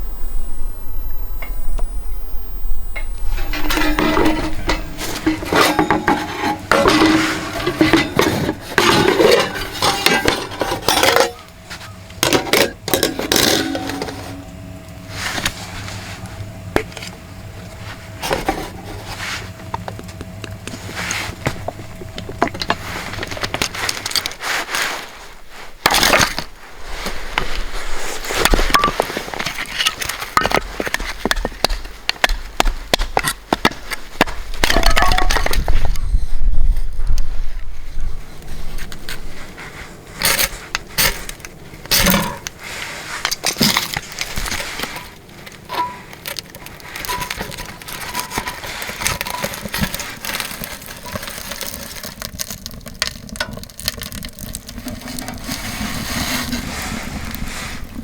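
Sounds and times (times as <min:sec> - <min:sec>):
cookware clinking and clattering: 0:03.3 - 0:11.4, 0:12.2 - 0:14.4.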